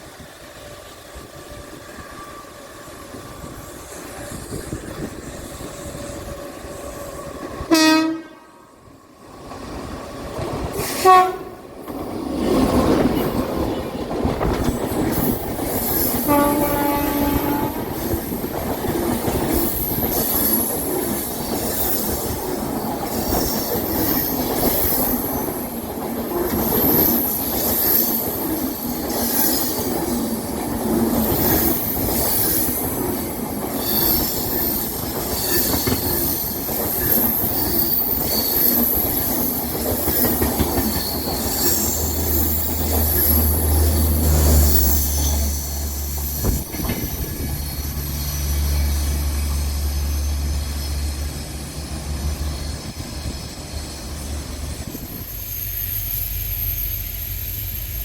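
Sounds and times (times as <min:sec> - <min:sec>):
train wheels squealing: 0:00.0 - 0:07.7, 0:12.7 - 0:58.0
train horn blast: 0:06.0 - 0:08.8, 0:10.8 - 0:11.6, 0:16.2 - 0:18.0
wheels rattling over track joints: 0:11.8 - 0:55.6.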